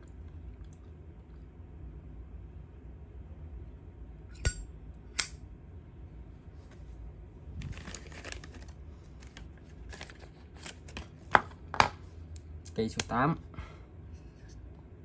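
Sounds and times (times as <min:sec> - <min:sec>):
lighter metal clicks: 0:05.2 - 0:05.4
rustling handling noise: 0:06.4 - 0:12.1.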